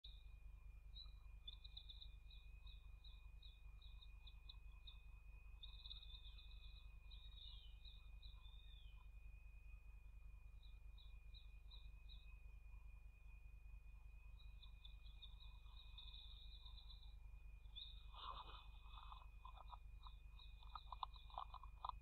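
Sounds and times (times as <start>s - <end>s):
low hum: 0.0s - 22.0s
high bird chirps: 14.4s - 22.0s.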